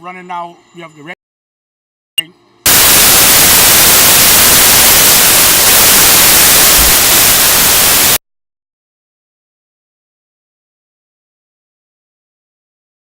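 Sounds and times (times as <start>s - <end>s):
static hiss: 2.7s - 8.2s.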